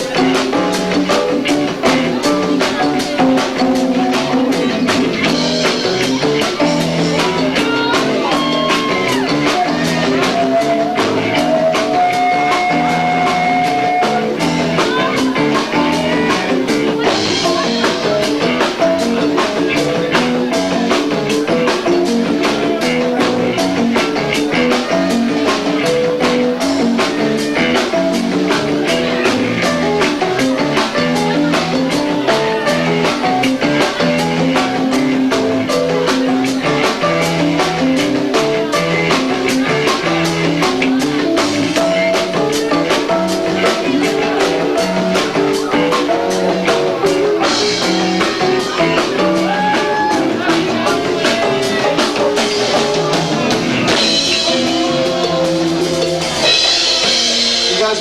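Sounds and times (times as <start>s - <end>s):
fast dense drumming: 0.0s - 58.0s
live rock band: 0.0s - 58.0s.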